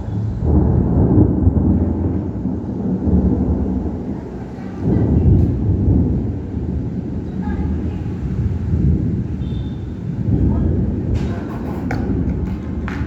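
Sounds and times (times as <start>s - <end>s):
thunder rumbling: 0.0s - 13.0s.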